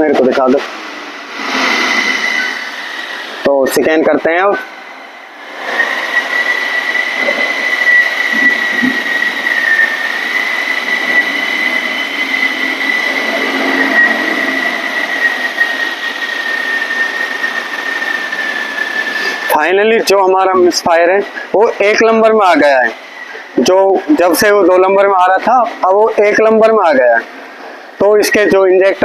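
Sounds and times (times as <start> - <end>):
high-pitched whine: 0.0 - 29.0.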